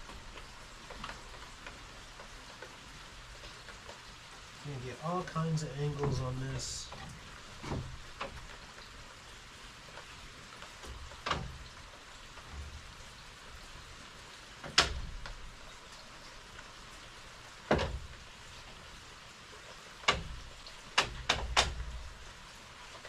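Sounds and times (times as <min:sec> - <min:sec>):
steady hiss: 0:00.0 - 0:23.0
knocks on wooden frame: 0:17.7 - 0:18.1.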